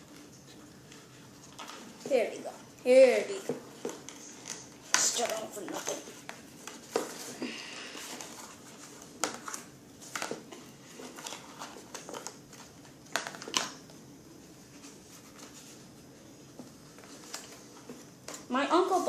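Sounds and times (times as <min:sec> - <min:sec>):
packaging rustling: 0:03.8 - 0:13.8.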